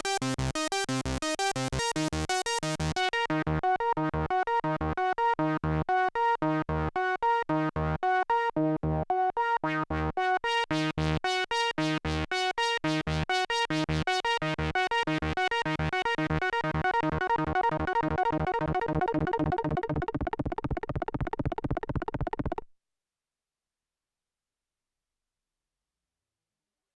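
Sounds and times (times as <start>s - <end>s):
synthesizer staccato arpeggio: 16.8s - 22.6s.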